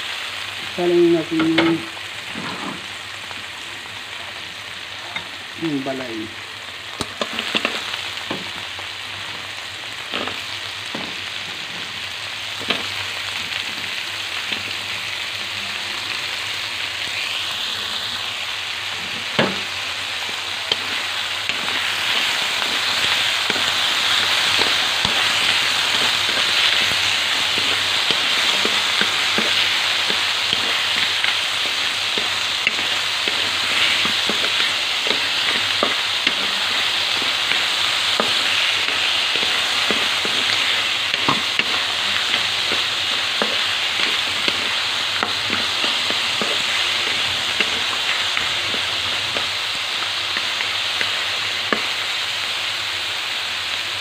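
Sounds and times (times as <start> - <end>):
food sizzling in a wok: 0.0 - 54.0
wooden spatula scraping and knocking: 2.3 - 2.8, 20.7 - 49.5.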